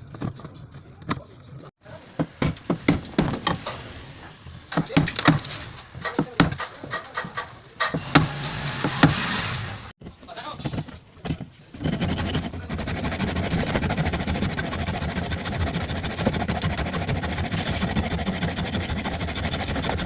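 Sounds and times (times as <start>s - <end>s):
tools knocking and clicking: 4.7s - 9.2s.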